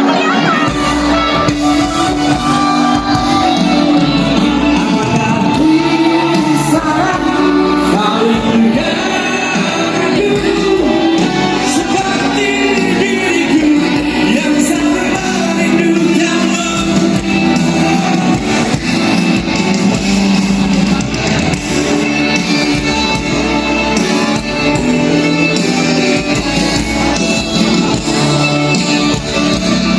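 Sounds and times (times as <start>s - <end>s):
person singing: 0.0s - 19.5s
live band playing: 0.0s - 29.9s.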